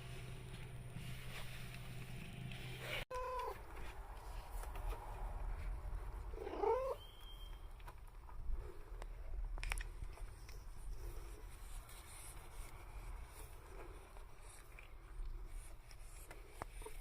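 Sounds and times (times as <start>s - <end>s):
low steady hum: 0.0s - 17.0s
cat meowing: 3.1s - 3.6s, 6.4s - 7.0s.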